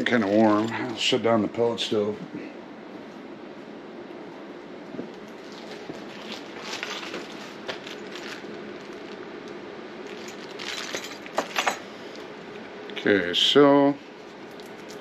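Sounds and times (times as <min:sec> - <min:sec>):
low room hum: 0:00.0 - 0:15.0
plastic bag crinkling: 0:05.4 - 0:11.4
small parts being handled: 0:10.0 - 0:11.8.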